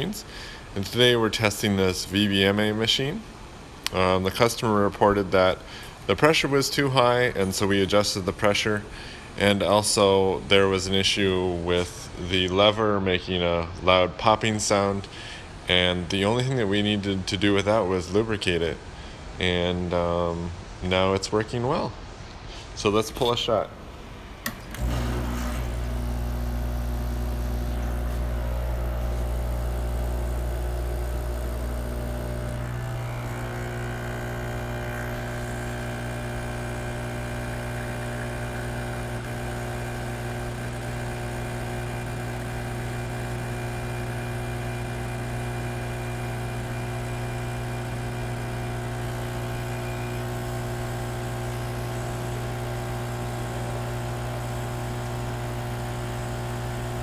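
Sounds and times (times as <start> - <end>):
espresso machine click: 24.4 - 49.9
espresso machine pump humming: 24.4 - 57.0.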